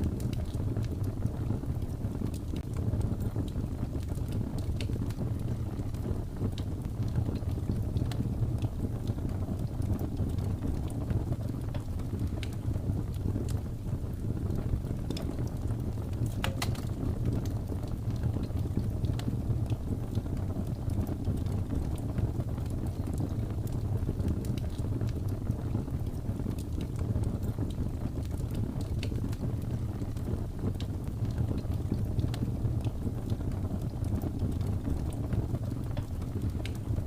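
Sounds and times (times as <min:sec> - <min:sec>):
low rumble of blizzard wind: 0:00.0 - 0:37.0
wood fire crackling and popping: 0:00.0 - 0:37.0.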